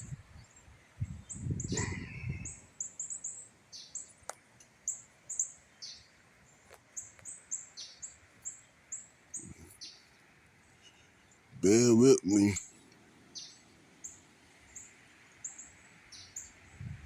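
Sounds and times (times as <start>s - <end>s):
wind buffeting microphone: 0.0s - 0.4s, 1.0s - 2.7s, 16.7s - 17.0s
small birds chirping: 0.0s - 11.9s, 12.6s - 17.0s.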